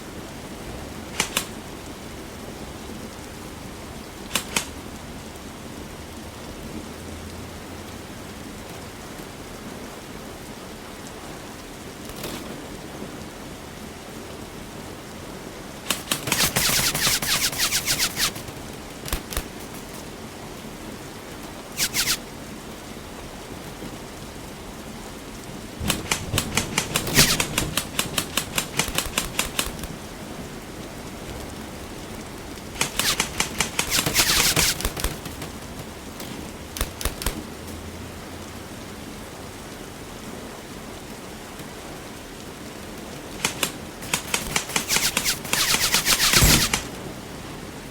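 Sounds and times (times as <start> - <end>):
steady hiss: 15.8 - 20.5, 25.7 - 38.2, 43.3 - 47.1
airsoft guns firing bursts: 15.9 - 20.2, 21.8 - 22.2, 25.8 - 29.9, 32.8 - 35.9, 36.8 - 37.4, 43.4 - 46.9.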